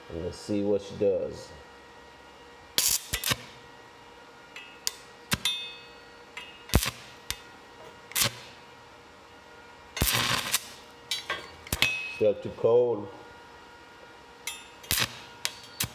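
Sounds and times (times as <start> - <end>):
welding arc crackling bursts: 2.8 - 3.6, 4.9 - 5.4, 6.7 - 7.5, 8.1 - 8.6, 10.0 - 11.1, 14.8 - 15.9.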